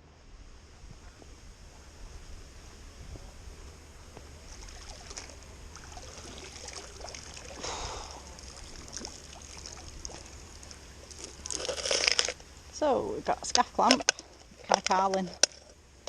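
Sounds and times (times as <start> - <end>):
water splash: 4.5 - 10.8
water trickling and dripping: 4.5 - 11.6.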